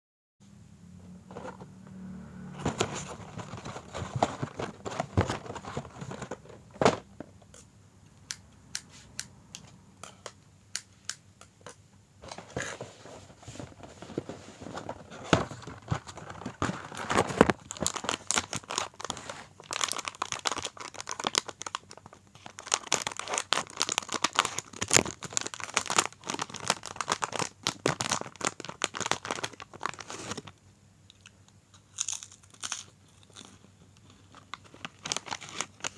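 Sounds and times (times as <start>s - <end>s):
plastic packet crinkling and tearing: 15.5s - 30.5s, 31.8s - 35.9s.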